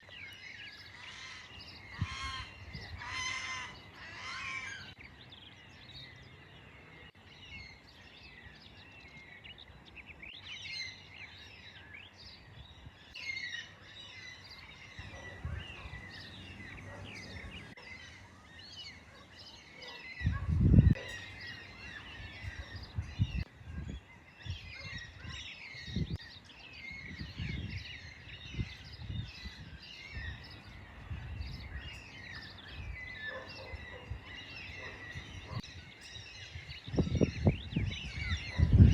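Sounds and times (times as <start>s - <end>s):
small birds chirping: 0.0s - 38.9s
crows cawing: 1.0s - 4.9s.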